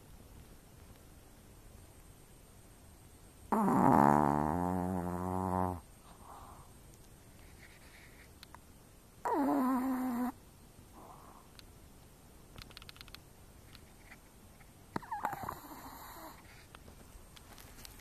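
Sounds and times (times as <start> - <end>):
small dog snoring: 3.5 - 6.6, 9.2 - 10.4, 14.9 - 16.6
dog breathing softly: 6.0 - 6.8, 15.0 - 16.8.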